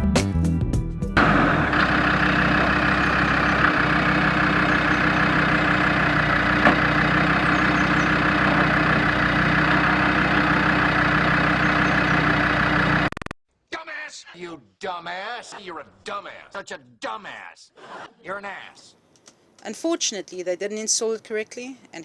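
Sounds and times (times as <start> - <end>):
diesel engine idling: 1.2 - 13.2.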